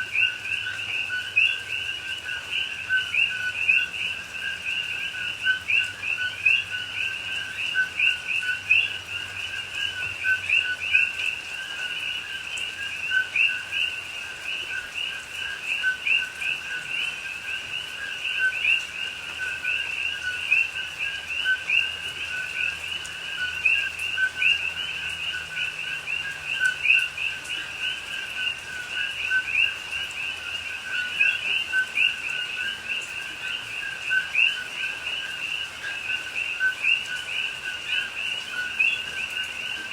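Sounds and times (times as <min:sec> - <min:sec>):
chorus of frogs calling: 0:00.0 - 0:39.9.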